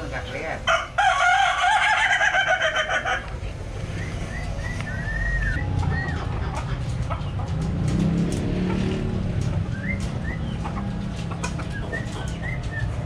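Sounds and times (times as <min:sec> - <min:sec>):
rooster crowing: 0:00.7 - 0:03.3
budgerigars chirping: 0:03.8 - 0:07.5, 0:09.6 - 0:13.0.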